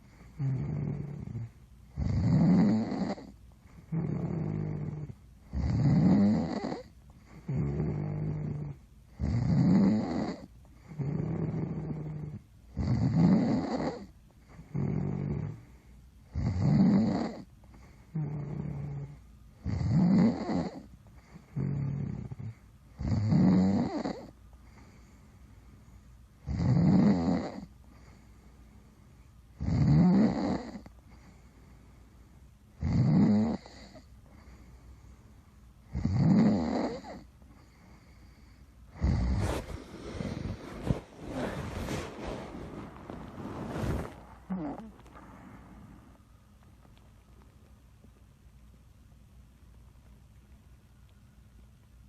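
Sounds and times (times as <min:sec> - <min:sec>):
person snoring: 0:00.3 - 0:03.3, 0:03.9 - 0:14.1, 0:38.9 - 0:46.2.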